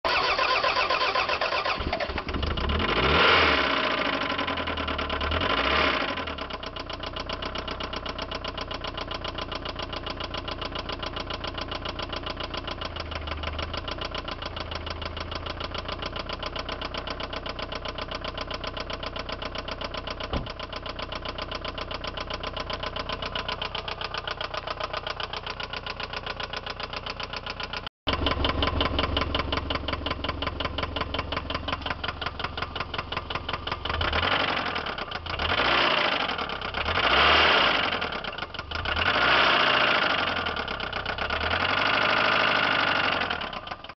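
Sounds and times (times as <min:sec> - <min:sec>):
car engine idling with heavy knock: 0:06.6 - 0:36.2.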